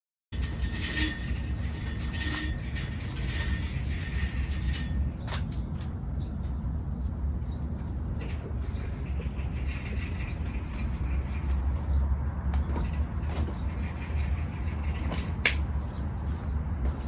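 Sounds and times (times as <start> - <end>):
city traffic rumble: 0.3 - 17.0.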